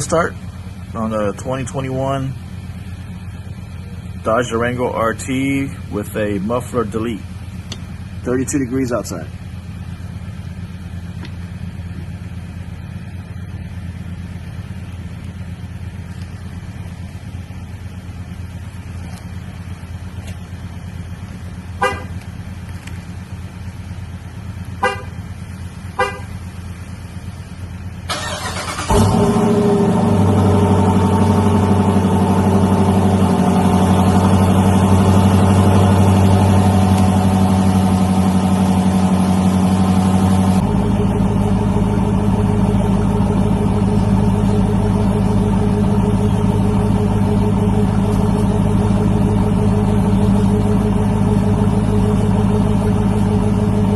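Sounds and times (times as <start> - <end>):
car engine idling loudly: 0.0 - 53.9
car horn chirps: 21.8 - 22.2, 24.7 - 25.3, 25.9 - 26.4
starter motor cranking: 28.1 - 29.4.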